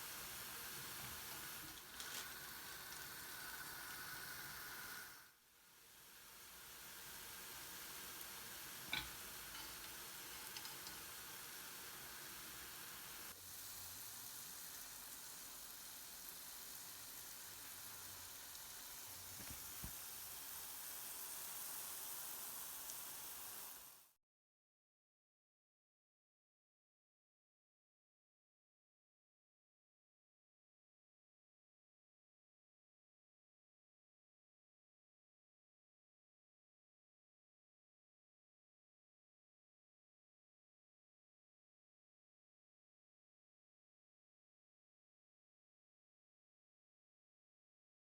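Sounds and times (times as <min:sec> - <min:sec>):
batter sizzling in hot oil: 0:00.0 - 0:24.2.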